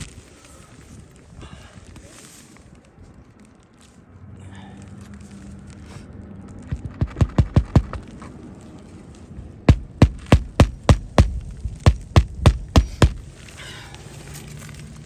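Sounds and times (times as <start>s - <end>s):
hammer blows on a roof: 6.7s - 8.0s, 9.7s - 13.3s.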